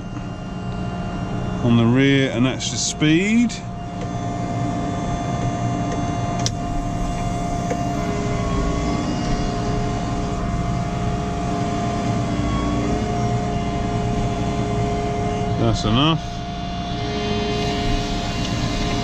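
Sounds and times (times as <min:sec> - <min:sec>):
steady whine: 0:00.0 - 0:19.0
tractor diesel engine running: 0:06.4 - 0:19.0.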